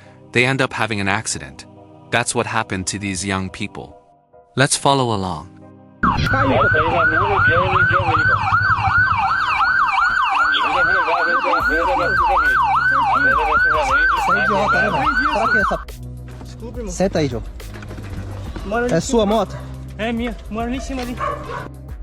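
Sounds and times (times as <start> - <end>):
police siren yelping: 6.0 - 15.8.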